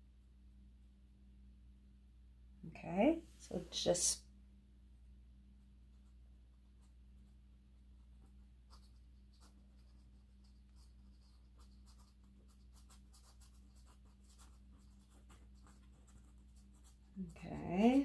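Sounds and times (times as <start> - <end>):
low electrical hum: 0.0 - 18.0
paintbrush scratching: 5.9 - 18.0.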